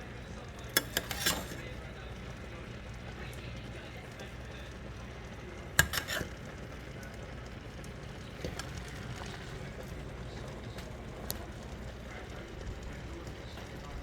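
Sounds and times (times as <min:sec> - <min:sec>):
low background hum: 0:00.0 - 0:14.0
kitchenware clinking: 0:00.6 - 0:01.8, 0:05.6 - 0:06.7, 0:08.3 - 0:10.4.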